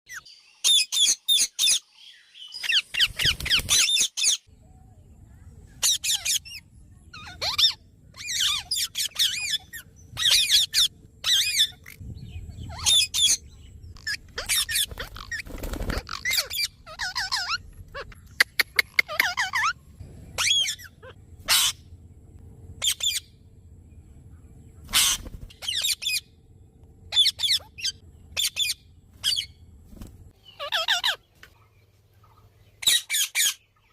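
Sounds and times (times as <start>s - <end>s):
faint low hum: 4.5s - 33.9s
parrots squawking: 5.8s - 6.6s, 7.2s - 12.0s, 12.6s - 13.4s, 14.0s - 19.8s, 20.4s - 21.9s, 22.8s - 23.3s, 24.9s - 26.3s, 27.1s - 29.6s, 30.4s - 31.3s, 32.8s - 33.7s.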